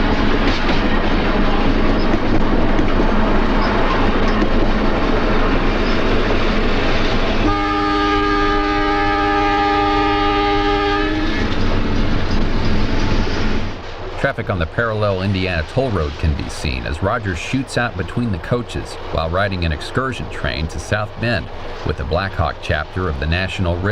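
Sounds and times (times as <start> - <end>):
electric train rumbling past: 0.0 - 23.9
wheels clattering on rail: 0.0 - 23.9
train horn blast: 7.4 - 12.0.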